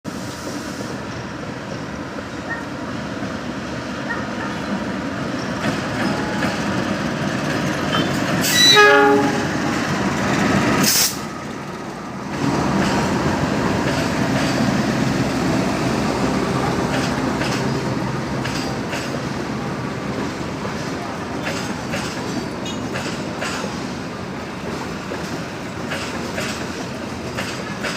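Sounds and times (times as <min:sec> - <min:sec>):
train rumbling: 0:00.1 - 0:27.9
train horn blast: 0:08.4 - 0:09.6.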